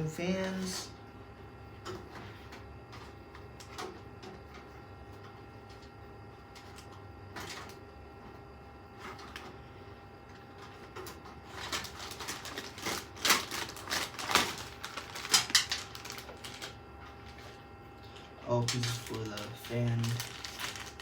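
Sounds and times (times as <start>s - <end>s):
computer parts clicking and rattling: 10.6s - 17.5s, 18.5s - 21.0s.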